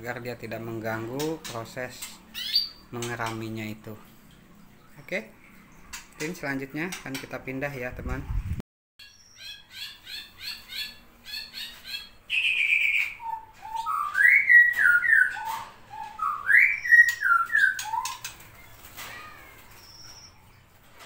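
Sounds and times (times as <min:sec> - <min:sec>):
canary singing: 0:01.1 - 0:03.4, 0:09.0 - 0:20.7.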